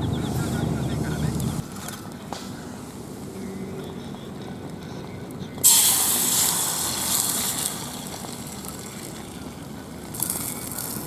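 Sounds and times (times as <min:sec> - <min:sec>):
food sizzling: 0:05.6 - 0:09.2.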